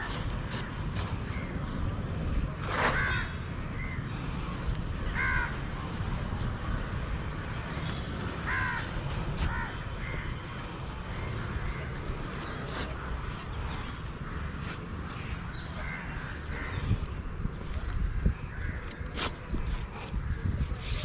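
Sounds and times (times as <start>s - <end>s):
harsh bird calls: 7.5s - 20.4s.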